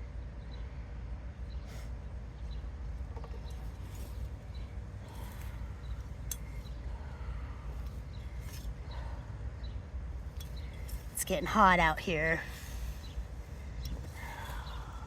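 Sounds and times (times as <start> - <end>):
steady low rumble: 0.0 - 15.0
faint bird chirps: 12.5 - 15.0.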